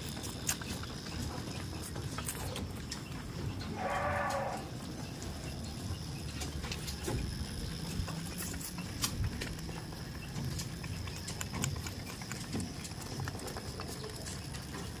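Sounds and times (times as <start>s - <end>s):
goat hooves clicking: 0.0s - 15.0s.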